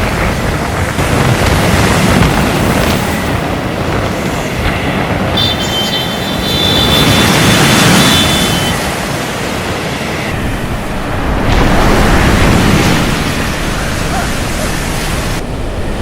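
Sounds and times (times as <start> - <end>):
waves breaking: 0.0 - 16.0
wind: 0.0 - 16.0.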